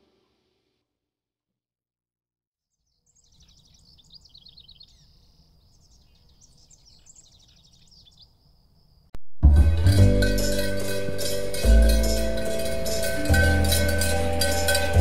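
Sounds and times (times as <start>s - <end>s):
songbird chirping and trilling: 2.7s - 9.1s.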